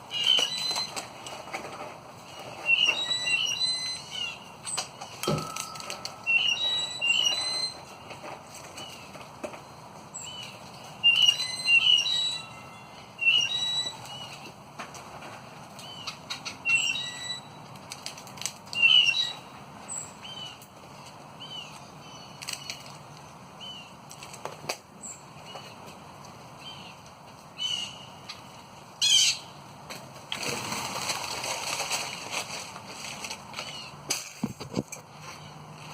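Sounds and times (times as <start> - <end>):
birds chirping: 0.0 - 1.5, 2.2 - 14.6, 15.7 - 17.7, 18.7 - 24.1, 25.0 - 29.7
wings flapping: 30.3 - 33.7.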